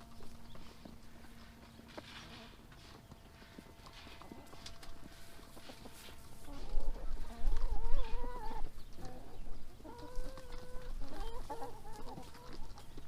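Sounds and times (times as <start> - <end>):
hens calling: 0.0 - 13.0.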